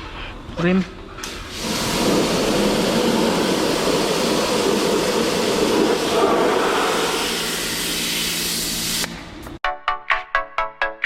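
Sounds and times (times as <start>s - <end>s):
water jet spraying: 1.5s - 9.1s.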